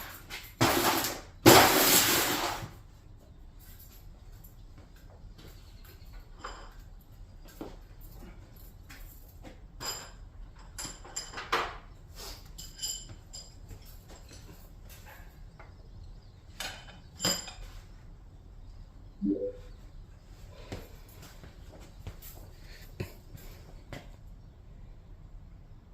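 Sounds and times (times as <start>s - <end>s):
metal tools clinking: 12.4s - 15.3s.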